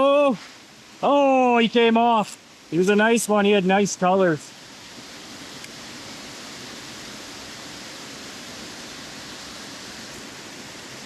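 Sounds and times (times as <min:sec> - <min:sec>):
river water rushing over rocks: 0:04.6 - 0:11.0.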